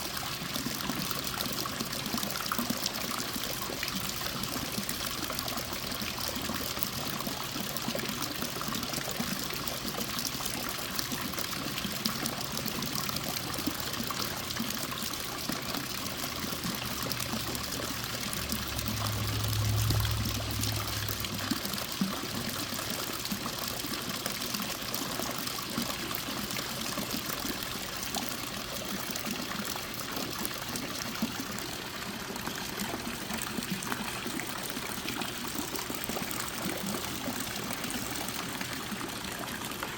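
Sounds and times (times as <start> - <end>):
water fountain trickling: 0.0 - 39.9
low hum: 18.3 - 21.8.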